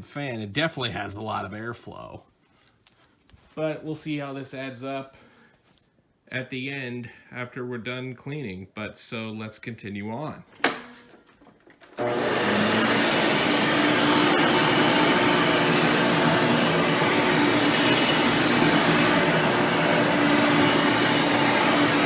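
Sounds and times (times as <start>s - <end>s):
upright vacuum cleaner running: 10.6s - 22.0s.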